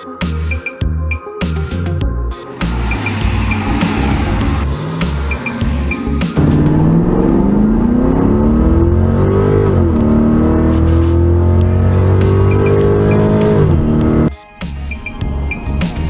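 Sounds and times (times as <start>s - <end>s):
car engine accelerating hard: 2.5s - 14.3s.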